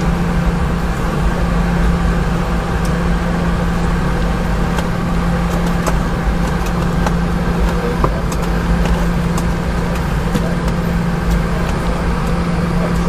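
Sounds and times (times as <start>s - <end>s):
aircraft cabin engine hum: 0.0s - 13.0s
low drone tone: 0.0s - 13.0s.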